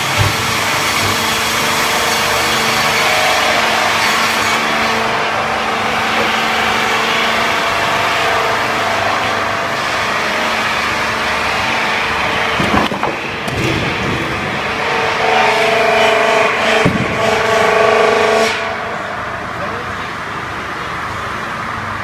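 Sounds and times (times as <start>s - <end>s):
sharp knocks: 0.0s - 2.7s, 16.8s - 17.4s
log-squaring machine running: 0.0s - 22.0s.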